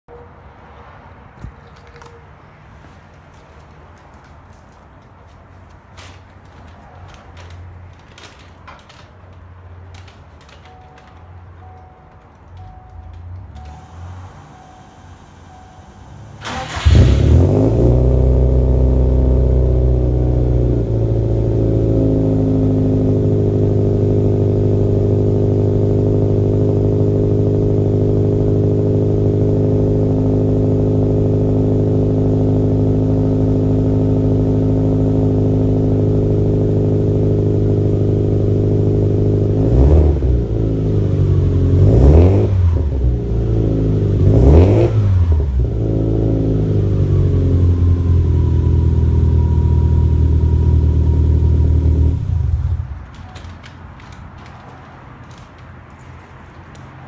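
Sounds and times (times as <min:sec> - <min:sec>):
car engine starting and idling: 0:05.6 - 0:56.8
car engine revving: 0:13.8 - 0:53.0.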